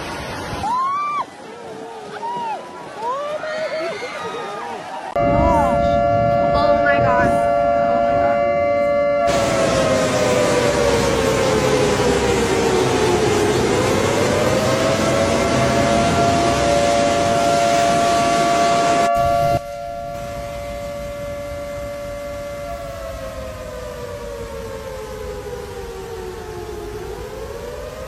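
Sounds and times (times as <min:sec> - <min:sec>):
heavy noisy wash: 0:05.2 - 0:28.0
warning siren wailing: 0:05.2 - 0:28.0.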